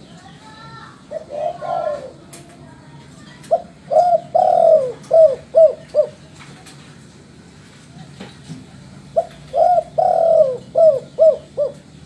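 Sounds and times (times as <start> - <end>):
dove cooing: 1.0 - 2.3, 3.5 - 6.3, 9.1 - 12.0.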